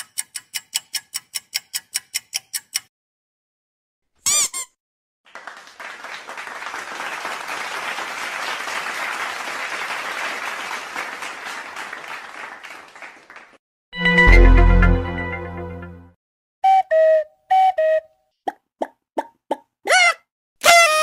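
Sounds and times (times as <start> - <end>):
audience applause: 5.3 - 13.6.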